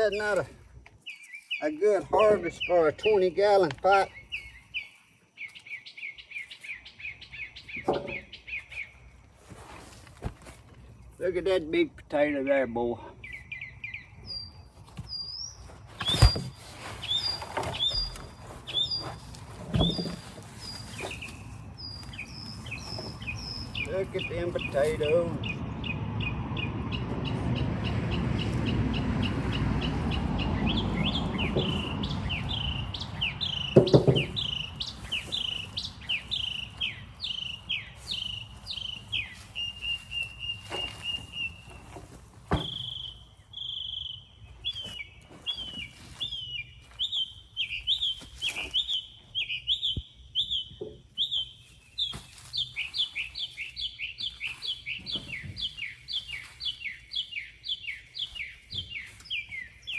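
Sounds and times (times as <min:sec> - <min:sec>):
songbird chirping: 0:00.0 - 0:59.9
thump: 0:07.8 - 0:08.3, 0:33.8 - 0:34.5, 0:42.5 - 0:42.9
low rumbling noise: 0:25.3 - 0:39.3.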